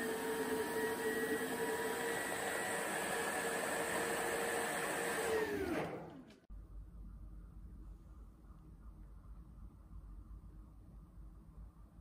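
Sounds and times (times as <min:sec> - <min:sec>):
stick vacuum whining: 0:00.0 - 0:06.4.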